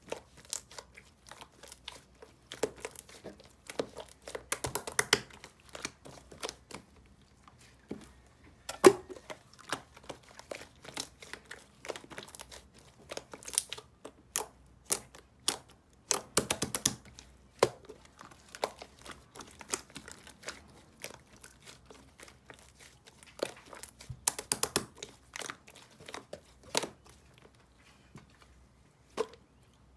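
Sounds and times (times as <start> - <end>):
crinkly material crumpling: 17.1 - 29.6.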